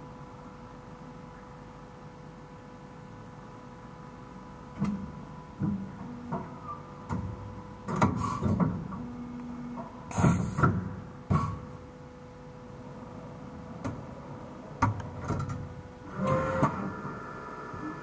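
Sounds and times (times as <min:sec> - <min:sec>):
machine hum: 0:00.0 - 0:18.0
mechanical clunks: 0:14.8 - 0:17.2
short motor whirs: 0:16.0 - 0:18.0.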